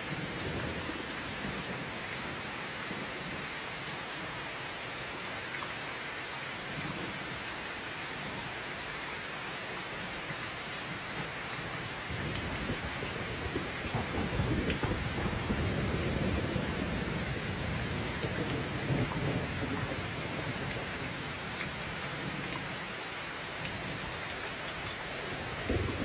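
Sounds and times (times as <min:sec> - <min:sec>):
heavy rain hissing: 0:10.8 - 0:22.5, 0:23.2 - 0:26.0
thunder rumbling: 0:12.1 - 0:20.8, 0:25.6 - 0:26.0.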